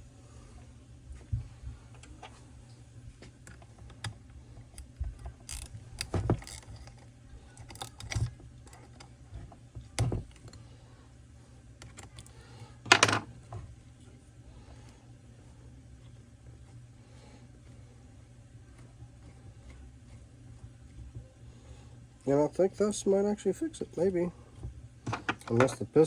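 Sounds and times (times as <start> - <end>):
metal parts clicking and clinking: 4.8 - 9.1.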